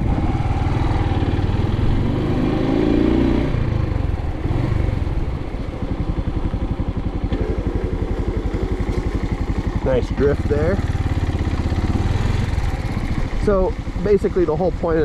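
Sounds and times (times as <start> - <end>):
motorcycle engine idling: 3.6 - 15.0.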